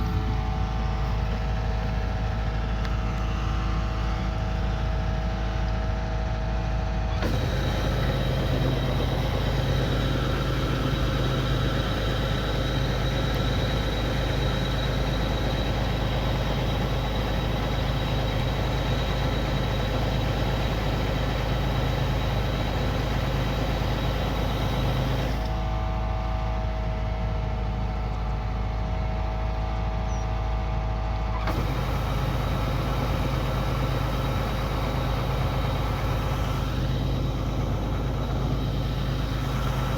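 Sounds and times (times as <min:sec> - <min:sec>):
steady whining tones: 0:00.0 - 0:04.4, 0:07.2 - 0:25.5, 0:31.5 - 0:39.9
combine harvester engine running: 0:00.0 - 0:39.9.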